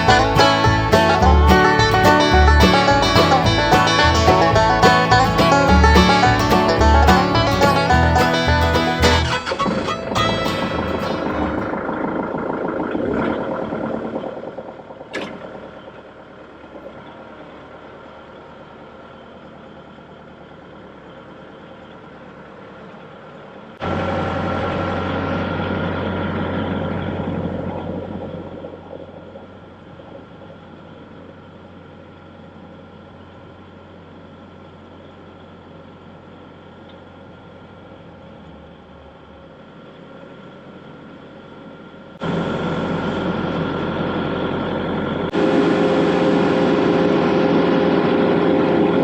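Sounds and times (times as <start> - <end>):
banjo music: 0.0 - 11.7
tractor engine running: 0.0 - 49.0.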